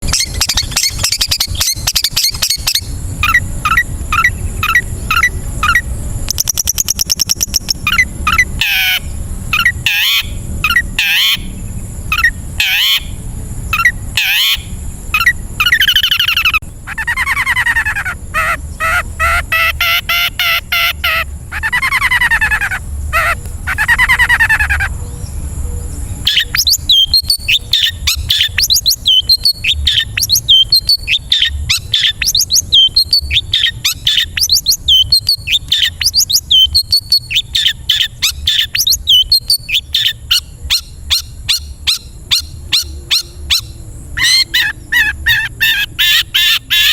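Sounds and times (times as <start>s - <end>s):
shrike singing varied song: 0.0s - 46.9s.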